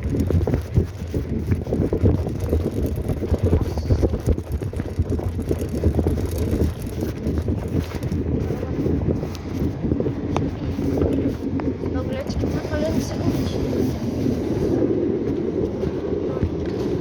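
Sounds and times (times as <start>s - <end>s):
bicycle knocks and rattles: 0.0s - 12.3s
wind rumbling on microphone: 0.0s - 17.0s.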